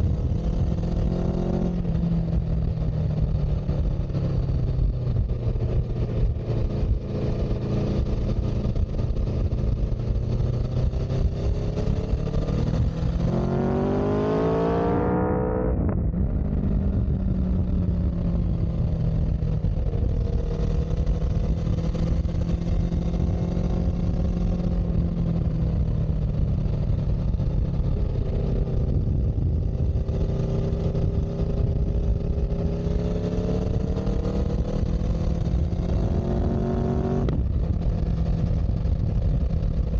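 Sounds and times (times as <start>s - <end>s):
vehicle engine revving: 10.5s - 16.6s, 27.9s - 37.8s.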